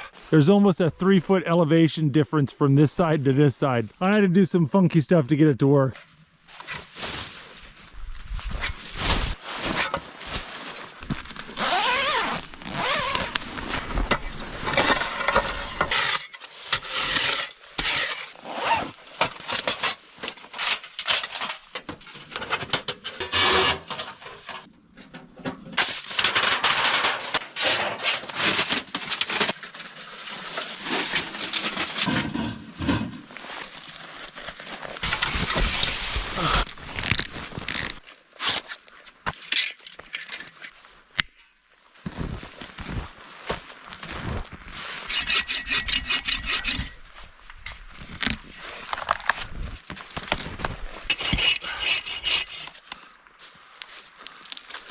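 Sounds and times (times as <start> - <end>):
gear scraping and rustling: 8.2 - 24.7, 25.8 - 38.8, 42.1 - 52.9.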